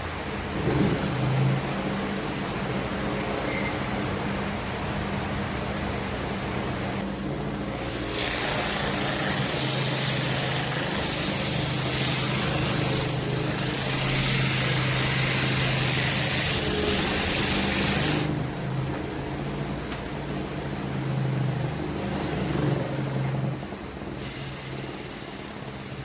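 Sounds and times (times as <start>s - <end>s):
power tool motor humming: 7.8s - 18.3s, 24.2s - 26.0s
abrasive grinding hiss: 7.8s - 18.4s.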